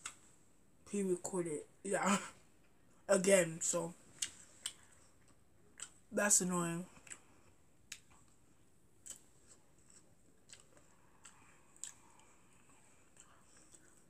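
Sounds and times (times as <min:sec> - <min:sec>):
mouth clicks and chewing: 0:04.2 - 0:06.0, 0:07.9 - 0:08.4, 0:09.0 - 0:14.0.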